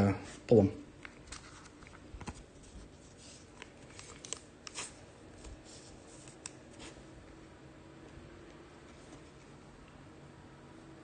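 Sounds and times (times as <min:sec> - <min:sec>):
pack wrappers rustling: 0:01.2 - 0:05.0.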